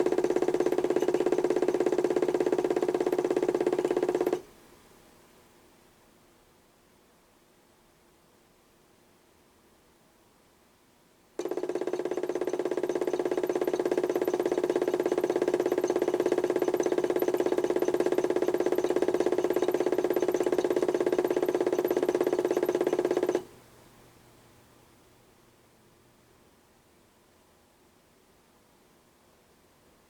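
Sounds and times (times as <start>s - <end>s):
electric motor humming: 0.0s - 4.3s.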